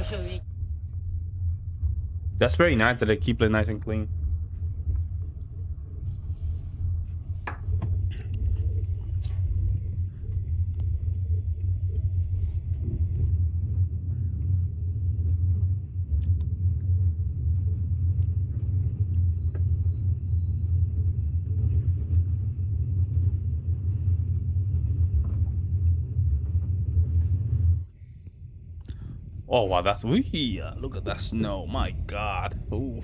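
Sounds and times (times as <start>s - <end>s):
train rumbling: 0.0s - 0.4s, 28.9s - 33.0s.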